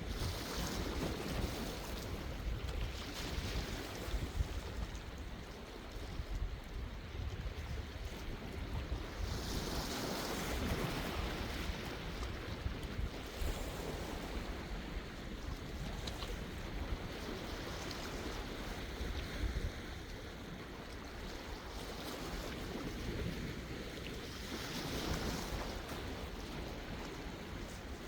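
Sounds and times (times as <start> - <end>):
sea waves breaking: 0.0 - 28.0
wind rumble on microphone: 0.0 - 28.0.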